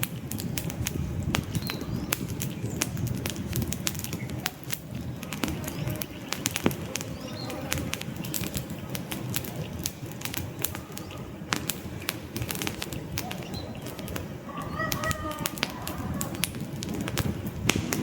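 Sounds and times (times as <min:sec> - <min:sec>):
campfire crackling and popping: 0:00.0 - 0:18.0
rush of flame: 0:00.0 - 0:18.0
faint bird calls: 0:03.9 - 0:17.4.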